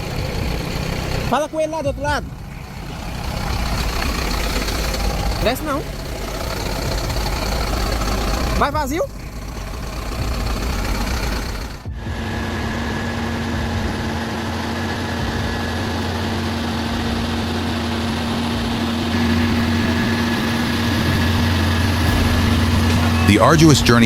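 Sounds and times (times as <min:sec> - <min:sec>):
heavy vehicle engine humming: 0:00.0 - 0:24.0.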